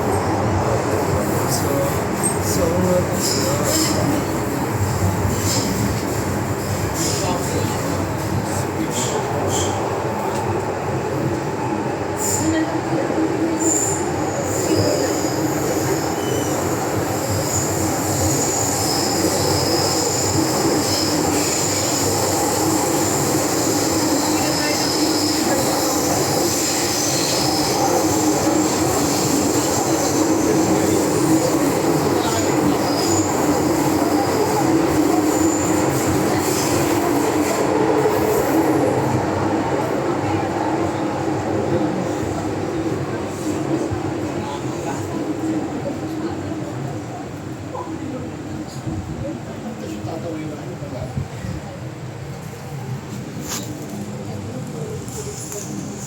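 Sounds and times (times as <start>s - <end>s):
metro wheels rumbling on rail: 0.0s - 56.0s
high wheel squeal: 13.6s - 36.9s.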